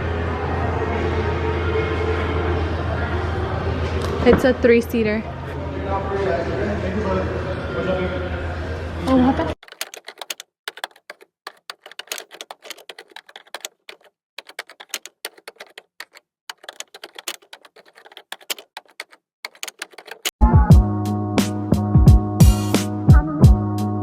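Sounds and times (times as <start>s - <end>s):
typing on computer keyboard: 9.6s - 20.3s.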